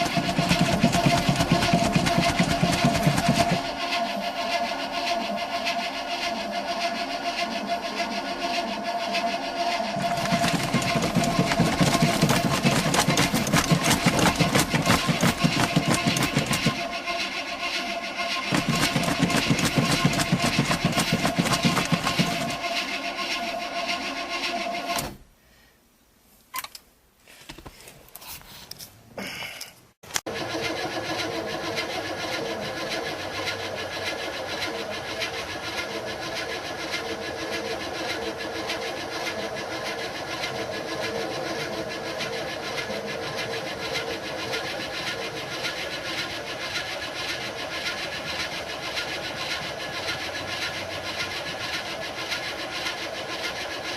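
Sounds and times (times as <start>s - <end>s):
car engine running unevenly: 0.0s - 3.8s, 9.8s - 22.8s
engine clicks: 0.0s - 3.8s, 9.9s - 22.8s
ticking clatter: 0.0s - 4.2s, 9.8s - 24.5s.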